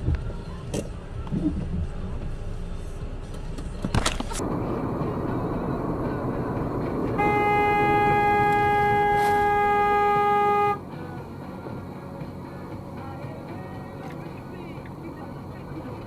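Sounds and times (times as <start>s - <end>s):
road noise from moving car: 0.0s - 16.0s
car horn honking: 7.0s - 10.8s.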